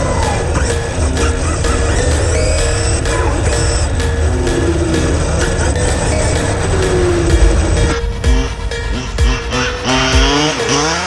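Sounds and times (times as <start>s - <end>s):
electronic dance music: 0.0s - 11.0s
sliding synth tones: 0.0s - 11.0s
heavy bass thumps: 3.1s - 10.6s.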